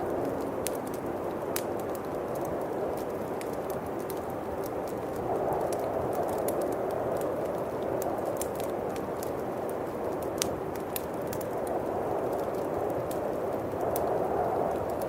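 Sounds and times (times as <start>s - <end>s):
wind howling: 0.0s - 2.2s
bonfire crackling: 0.0s - 15.0s.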